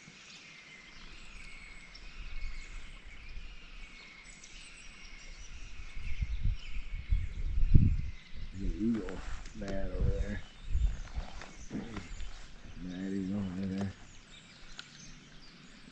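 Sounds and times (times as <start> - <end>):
birds chirping: 0.0 - 15.9
low rumbles on microphone: 4.9 - 14.3.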